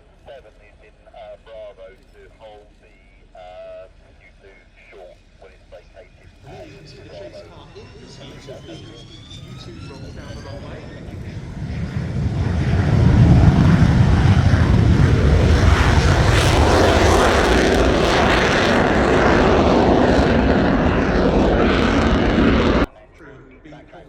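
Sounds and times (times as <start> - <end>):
jet engine roar: 6.3 - 22.9.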